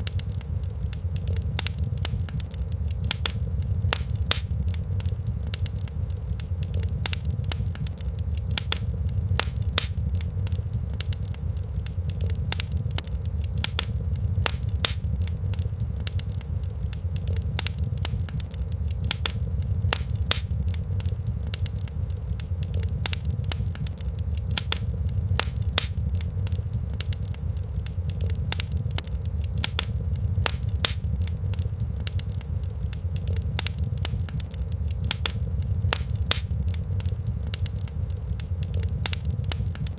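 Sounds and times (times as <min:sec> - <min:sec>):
low rumble: 0:00.0 - 0:39.9
wood fire crackling and popping: 0:00.0 - 0:39.9.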